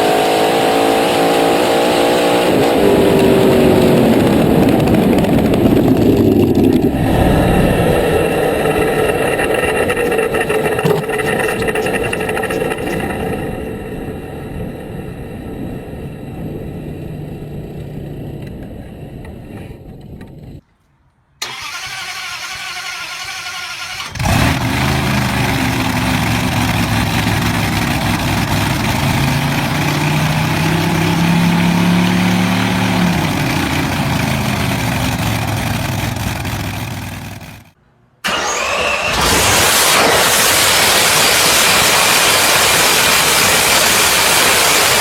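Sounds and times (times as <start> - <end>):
car engine starting and running: 0.0 - 20.6, 21.4 - 45.0
quieter engine sound: 3.5 - 20.6.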